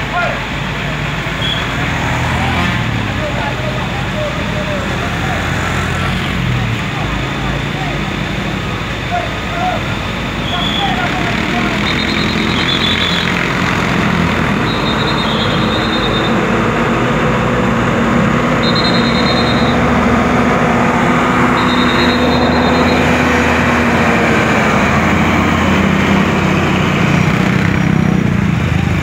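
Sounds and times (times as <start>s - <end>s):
truck diesel engines running: 0.0s - 29.0s
high tone: 18.5s - 23.4s.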